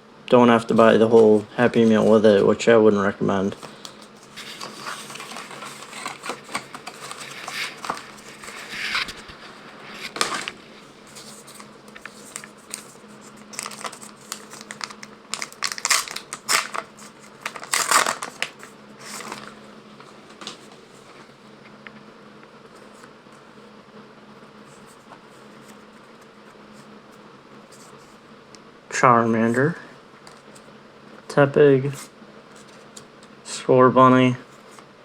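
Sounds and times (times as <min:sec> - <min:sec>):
wrappers crinkling and tearing: 0:03.6 - 0:10.6, 0:11.2 - 0:19.6.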